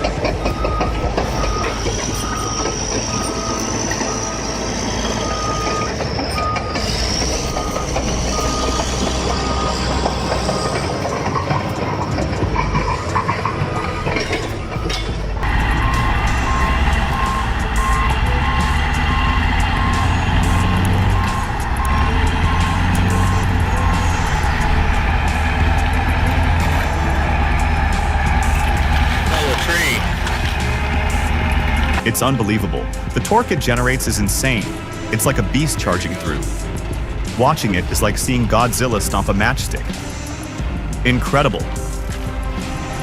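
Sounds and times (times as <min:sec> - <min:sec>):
engine and machinery noise: 0:00.0 - 0:43.0
backup alarm beeping: 0:00.2 - 0:11.8, 0:15.4 - 0:25.8
faster backup alarm beeping: 0:00.3 - 0:11.7, 0:15.4 - 0:27.0.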